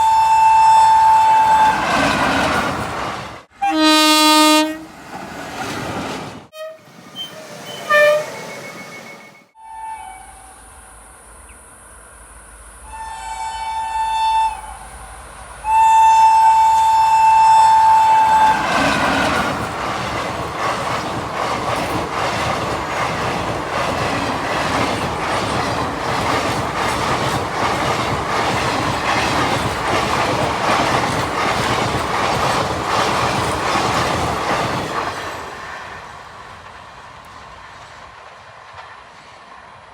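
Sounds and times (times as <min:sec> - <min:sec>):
train horn two-note chord: 0:03.6 - 0:04.8
train wheels clattering over rails: 0:18.0 - 0:36.0.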